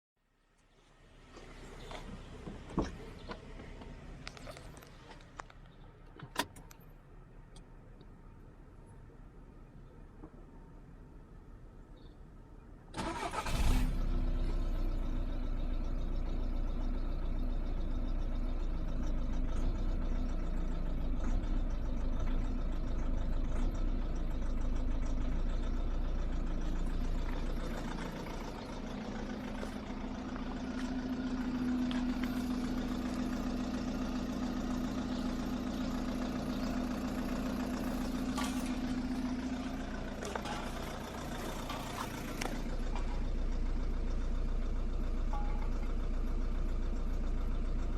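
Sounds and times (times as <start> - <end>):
diesel engine starting and idling: 12.7 - 47.9.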